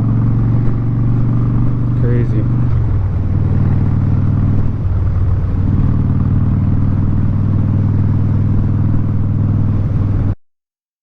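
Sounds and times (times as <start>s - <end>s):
motorcycle engine cruising: 0.0s - 10.4s.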